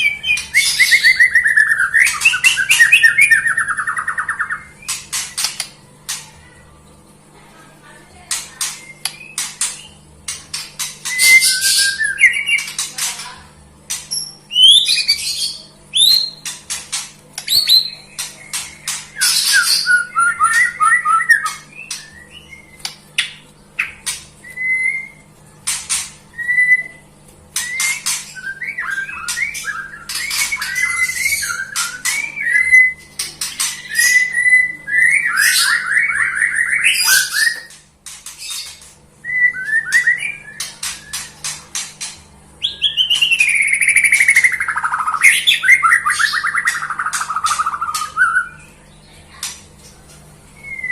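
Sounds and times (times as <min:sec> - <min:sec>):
songbird singing: 0:00.0 - 0:06.6, 0:17.4 - 0:25.3, 0:26.3 - 0:50.9.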